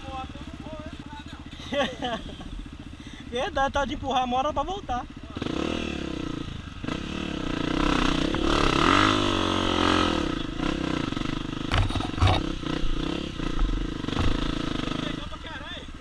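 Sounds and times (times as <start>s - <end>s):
dirt bike engine revving: 0.0s - 16.0s
sharp knocks: 11.7s - 12.5s, 13.6s - 14.6s.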